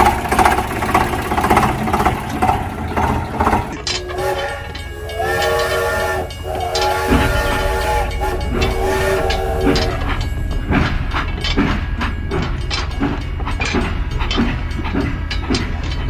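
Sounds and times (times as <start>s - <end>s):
train rumble: 0.0s - 16.0s
train wheels clickety-clack: 0.0s - 16.0s
train horn blasts: 3.8s - 11.3s.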